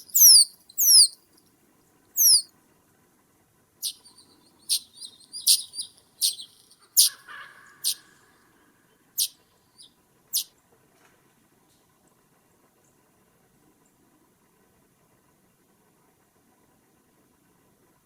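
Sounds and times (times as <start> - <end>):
high-pitched bird calls: 0.0 - 1.2, 2.2 - 2.5, 3.8 - 8.2, 9.2 - 10.5.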